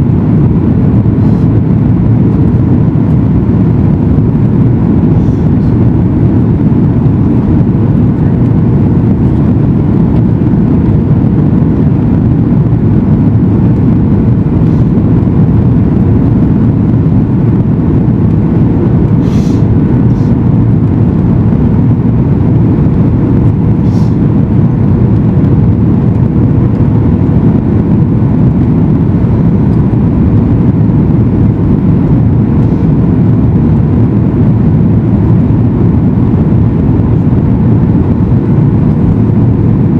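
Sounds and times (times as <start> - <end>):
airplane cabin engine noise: 0.0 - 39.9
faint steady hum: 0.0 - 39.9.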